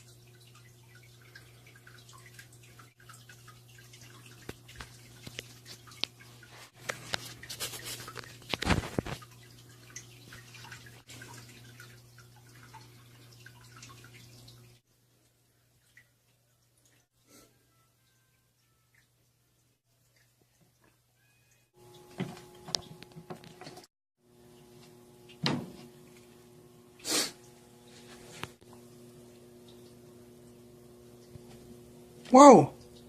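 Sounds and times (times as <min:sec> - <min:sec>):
water dripping and trickling: 0:00.0 - 0:27.8, 0:28.4 - 0:33.0
clicks and splashy noise: 0:04.2 - 0:09.5.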